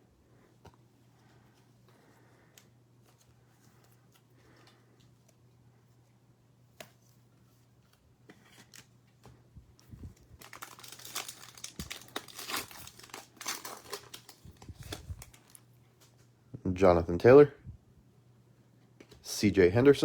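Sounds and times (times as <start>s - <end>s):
wrapper tearing and crinkling: 10.4s - 15.6s.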